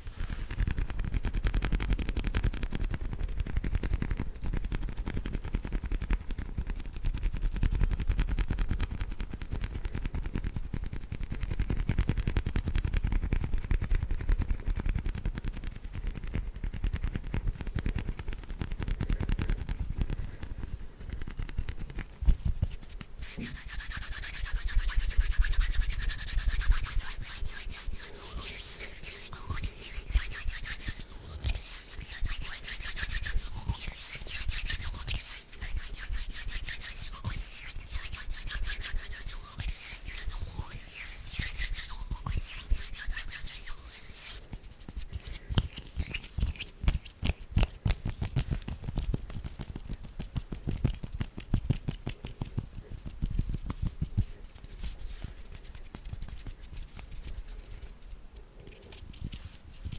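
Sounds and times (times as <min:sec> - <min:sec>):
hands rubbing together: 0:16.1 - 0:59.9.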